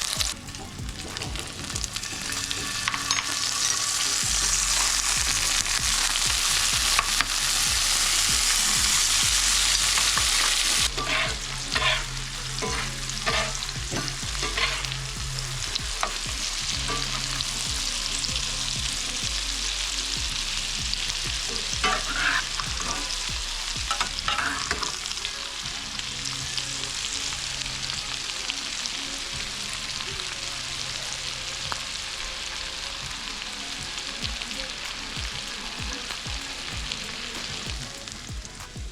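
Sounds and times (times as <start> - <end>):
utensil scraping in a pan: 0.0 - 25.1
fish sizzling in a pan: 0.0 - 38.9.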